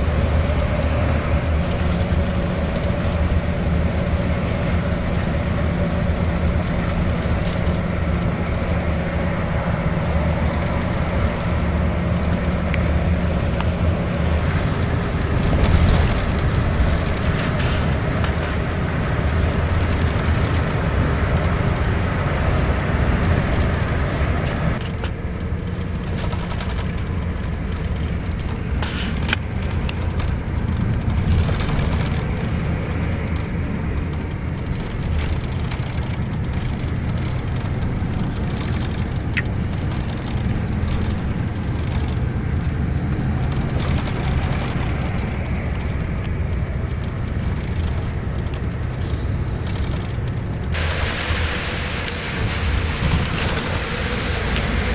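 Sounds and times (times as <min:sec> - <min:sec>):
road hiss: 0:00.0 - 0:25.1, 0:28.7 - 0:30.1, 0:48.8 - 0:54.9
bus engine and road rumble: 0:00.0 - 0:54.9.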